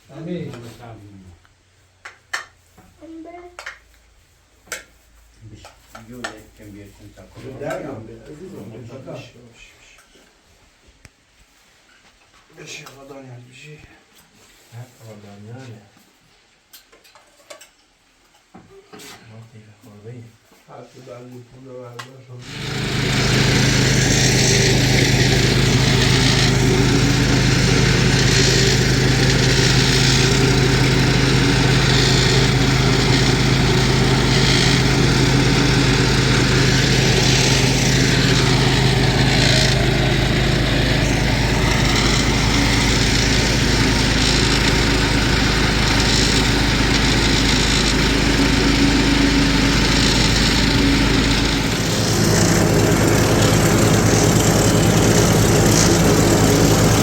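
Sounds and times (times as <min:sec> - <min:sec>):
small engine running: 0:22.4 - 0:57.0.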